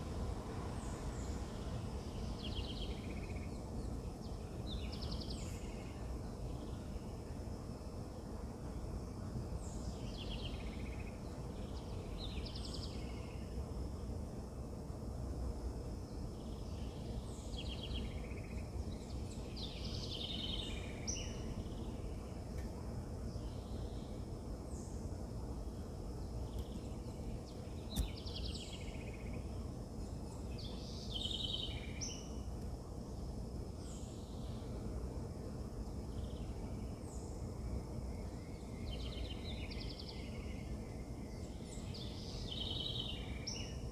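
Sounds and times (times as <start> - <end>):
wild birds chirping: 0.0 - 14.2, 16.0 - 43.9
low outdoor rumble: 0.0 - 43.9
sharp click: 27.9 - 28.2.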